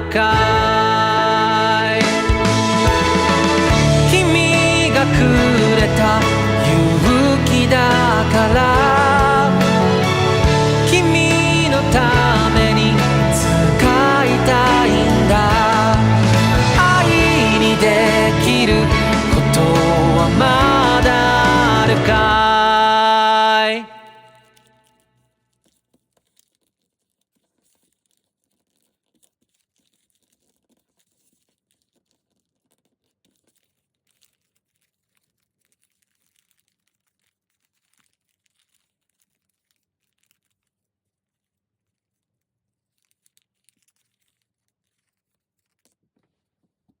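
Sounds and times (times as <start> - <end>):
background music: 0.0 - 24.4.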